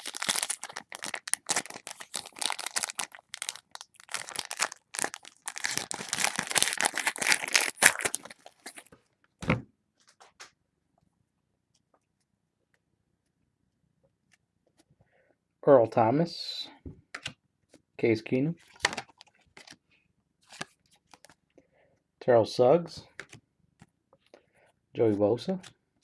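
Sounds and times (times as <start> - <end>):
wrapper crinkling and tearing: 0.0 - 8.9.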